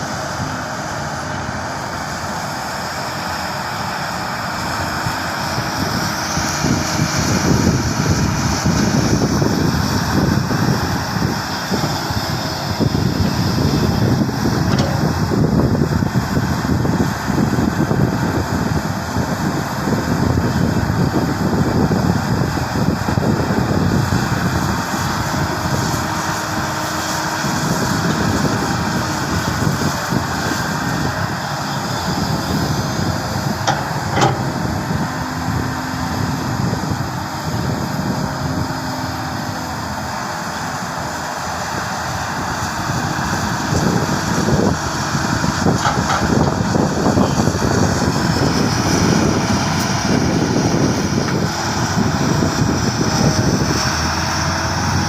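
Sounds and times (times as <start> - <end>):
diesel engine of heavy machinery: 0.0 - 55.0.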